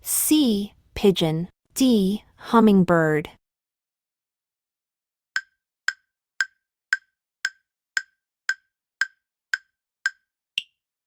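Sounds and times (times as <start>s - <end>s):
clock-like ticking: 5.4s - 10.8s.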